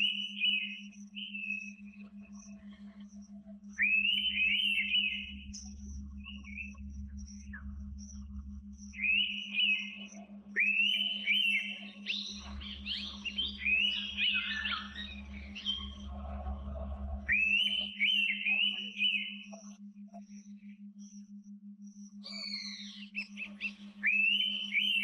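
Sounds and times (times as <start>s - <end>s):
birds whistling: 0.0s - 2.4s, 3.8s - 8.2s, 8.8s - 19.6s, 22.2s - 25.0s
low pulsing hum: 0.0s - 25.0s
low rumble: 5.2s - 9.4s, 12.3s - 17.8s.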